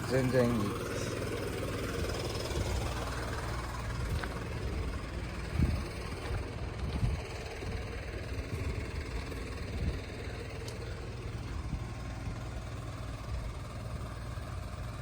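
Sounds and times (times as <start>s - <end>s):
diesel forklift engine idling: 0.0s - 15.0s.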